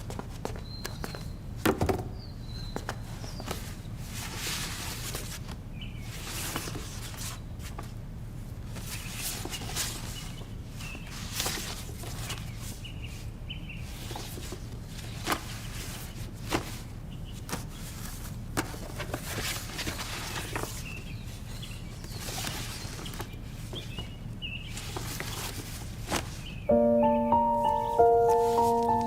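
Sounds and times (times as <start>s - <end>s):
quiet background hum: 0.0s - 29.0s
faint high chirps: 26.7s - 29.0s.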